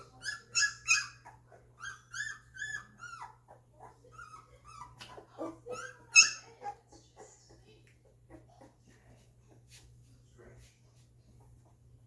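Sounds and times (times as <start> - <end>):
puppies whimpering and squealing: 0.0 - 9.6.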